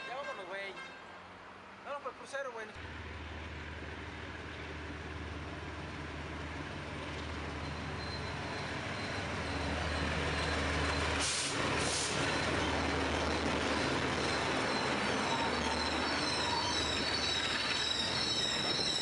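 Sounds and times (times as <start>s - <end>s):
diesel locomotive engine drone: 2.8s - 19.0s
short hisses: 11.2s - 12.2s.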